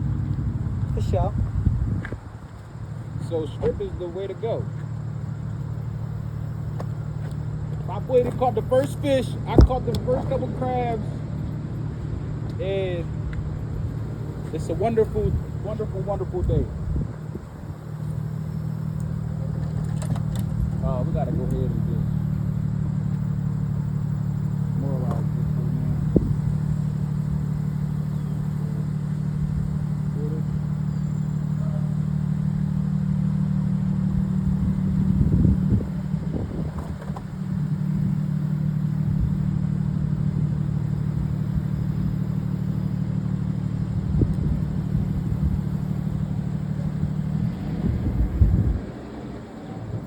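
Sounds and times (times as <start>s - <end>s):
motor running steadily: 0.0s - 50.0s.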